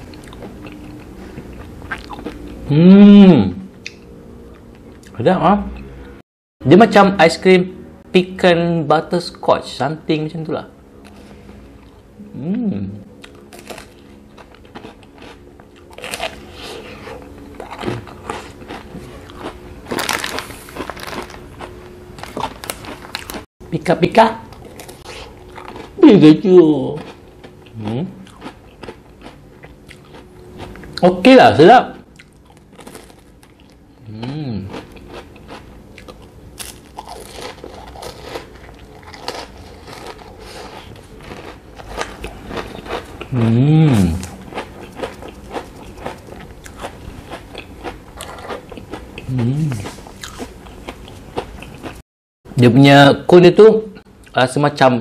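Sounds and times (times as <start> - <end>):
crunchy chewing of ice cream cone: 0.0 - 2.7, 13.2 - 23.5, 24.5 - 26.0, 26.9 - 31.1, 32.1 - 52.0.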